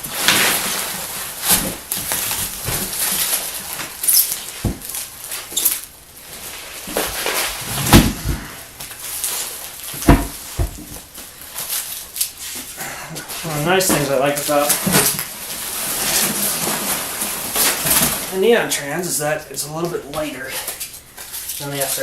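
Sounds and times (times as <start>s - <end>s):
packing peanuts rustling and squeaking: 0.1s - 7.7s, 8.6s - 22.0s
dull thumps: 4.6s - 4.9s, 6.9s - 8.9s, 9.9s - 11.1s.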